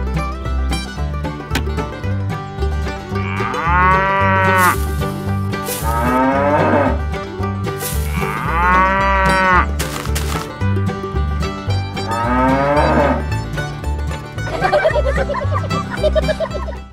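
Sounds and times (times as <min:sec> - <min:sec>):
banjo background music: 0:00.0 - 0:16.9
cow mooing: 0:03.2 - 0:04.8, 0:05.8 - 0:07.0, 0:08.0 - 0:09.7, 0:12.0 - 0:13.3.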